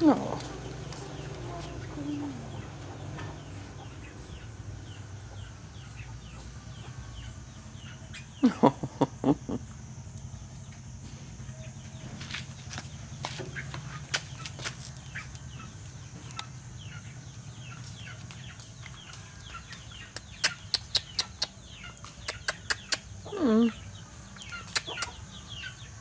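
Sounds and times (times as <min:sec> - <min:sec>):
chicks peeping: 0:00.0 - 0:11.0, 0:11.7 - 0:26.0
hens clucking: 0:00.0 - 0:11.0, 0:11.7 - 0:25.8
steady low hum: 0:00.0 - 0:26.0
sharp clicks: 0:20.1 - 0:23.1.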